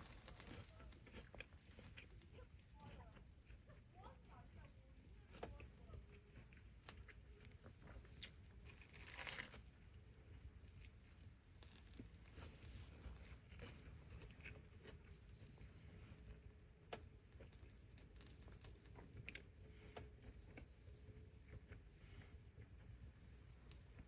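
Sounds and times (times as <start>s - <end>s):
crinkling rustle: 0.0s - 10.0s, 10.7s - 15.9s, 17.3s - 19.8s.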